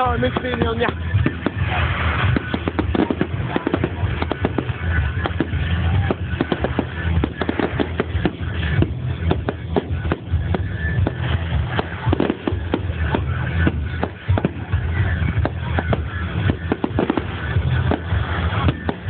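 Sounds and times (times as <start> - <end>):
fireworks bangs and crackles: 0.0 - 19.0
music playing: 0.0 - 19.0.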